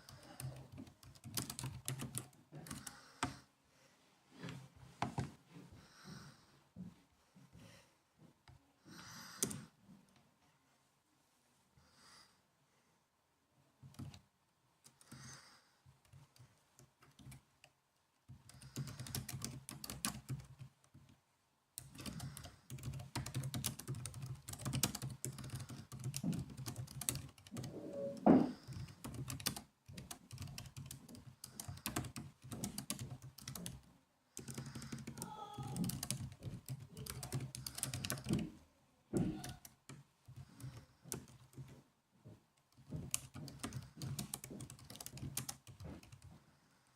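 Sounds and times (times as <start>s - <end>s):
laptop keyboard typing: 0.0s - 3.4s, 9.3s - 9.7s, 13.8s - 14.2s, 16.0s - 17.5s, 18.3s - 21.0s, 21.8s - 38.6s, 39.2s - 41.8s, 42.6s - 46.4s.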